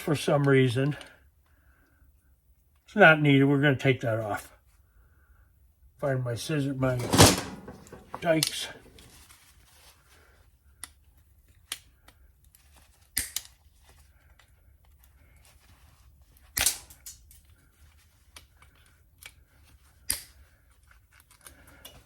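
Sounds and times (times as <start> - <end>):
tool clicks and handling: 7.0 - 8.6.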